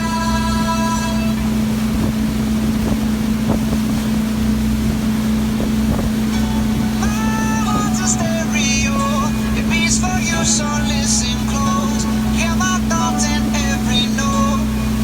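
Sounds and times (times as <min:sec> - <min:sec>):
motorboat engine droning: 0:00.0 - 0:15.0
wind buffeting microphone: 0:00.0 - 0:15.0
music: 0:06.3 - 0:15.0.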